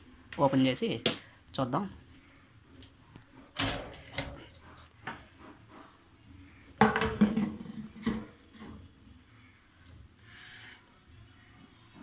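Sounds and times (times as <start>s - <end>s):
plastic parts knocking and scraping: 6.8s - 8.8s.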